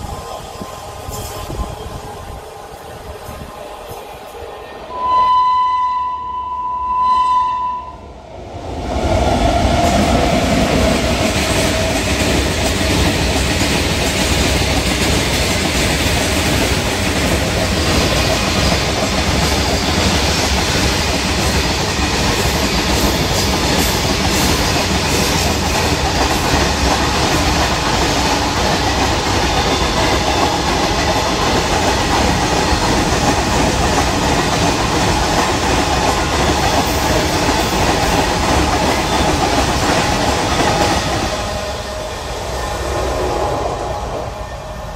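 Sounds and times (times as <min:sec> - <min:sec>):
freight train passing: 0:00.0 - 0:44.9
train horn blast: 0:04.9 - 0:08.1.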